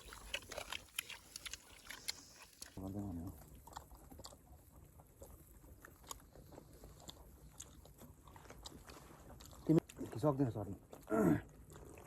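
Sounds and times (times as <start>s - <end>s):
mouth clicks: 0.0s - 2.8s
people chewing: 0.0s - 12.0s.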